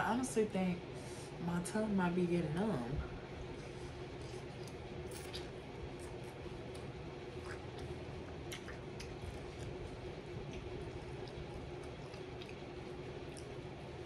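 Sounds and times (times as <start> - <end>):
steady background hum: 0.0 - 14.0
chewing fried chicken: 3.4 - 14.0.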